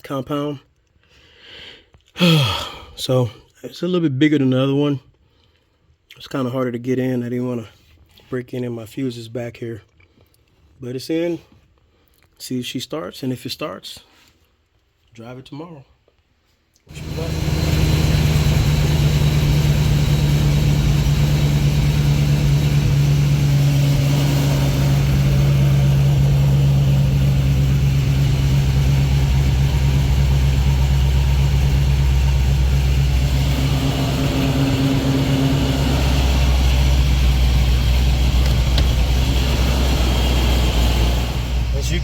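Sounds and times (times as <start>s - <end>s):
car engine idling: 16.9s - 42.0s.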